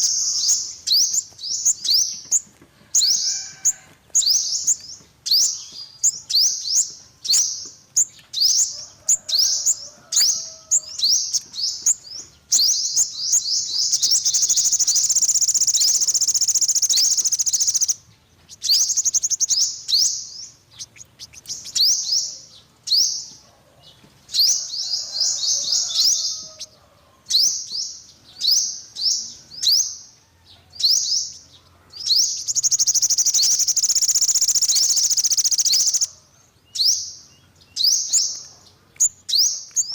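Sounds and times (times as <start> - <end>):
bird chirping: 0.0 - 39.9
bird buzzy trills: 12.5 - 18.0, 18.6 - 20.2, 32.3 - 36.1.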